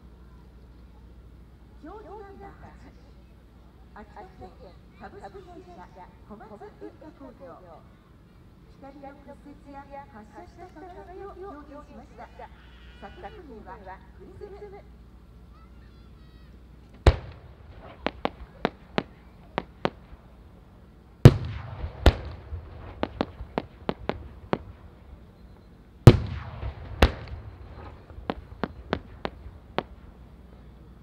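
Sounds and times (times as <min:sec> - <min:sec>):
firework crackling: 0:14.9 - 0:30.6
firework shells bursting: 0:16.8 - 0:20.6, 0:21.2 - 0:30.6.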